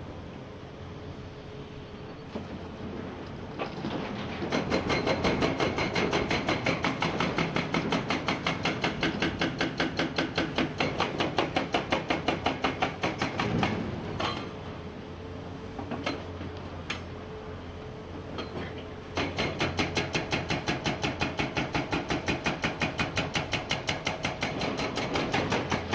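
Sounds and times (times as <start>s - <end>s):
hydraulic breaker pounding rock: 2.3s - 14.6s, 18.3s - 25.9s.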